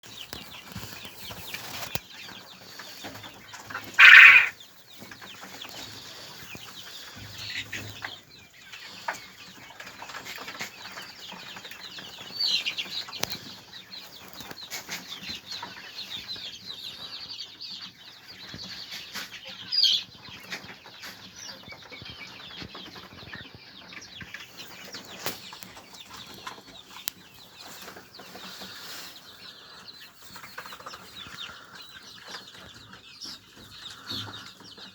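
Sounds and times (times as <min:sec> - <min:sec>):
poultry rustling in pen: 0:00.0 - 0:17.0, 0:17.8 - 0:34.9
poultry calls: 0:00.1 - 0:10.7.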